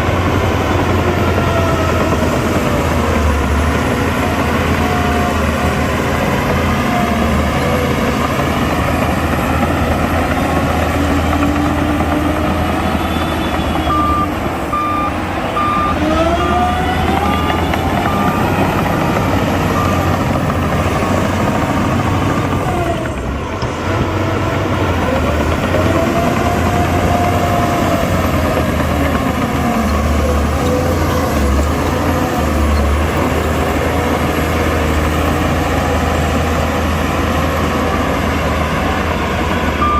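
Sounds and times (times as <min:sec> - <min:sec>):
heavy diesel machines revving: 0:00.0 - 0:39.9
reversing alarm beeping: 0:10.2 - 0:22.6, 0:39.7 - 0:39.9.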